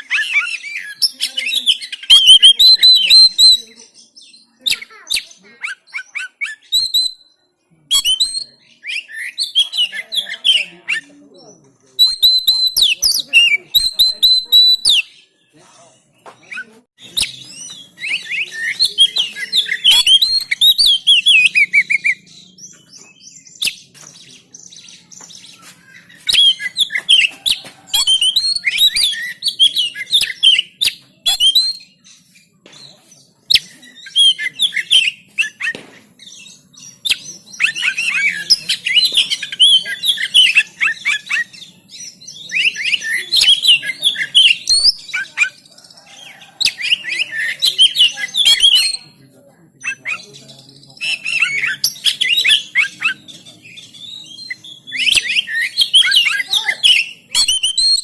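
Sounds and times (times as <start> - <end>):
bird singing chirps and whistles: 0.0 - 15.3, 16.2 - 32.9, 33.5 - 49.2, 49.8 - 58.0.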